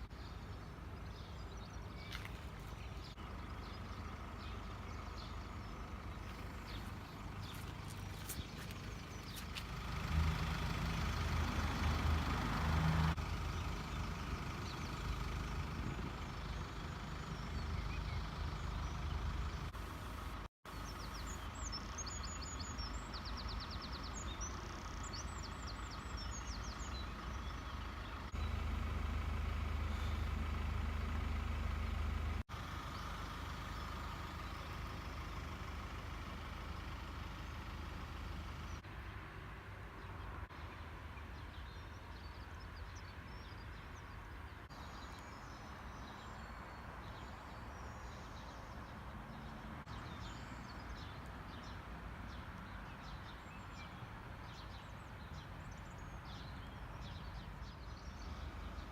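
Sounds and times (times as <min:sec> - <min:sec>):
birds chirping: 0:00.0 - 0:32.0
low engine rumble: 0:00.0 - 0:41.0.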